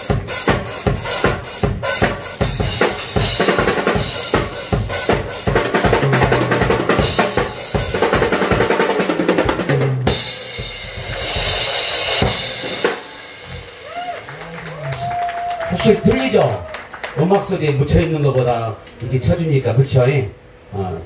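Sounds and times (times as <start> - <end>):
acoustic drum kit playing: 0.0 - 16.6.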